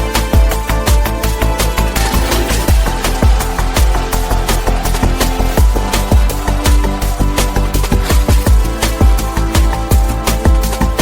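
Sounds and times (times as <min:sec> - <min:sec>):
upbeat electronic music: 0:00.0 - 0:11.0
kick drum beat: 0:02.7 - 0:11.0.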